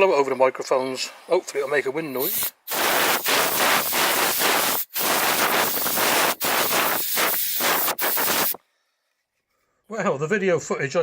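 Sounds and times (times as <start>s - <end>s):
air duster wind noise on microphone: 2.2s - 8.6s.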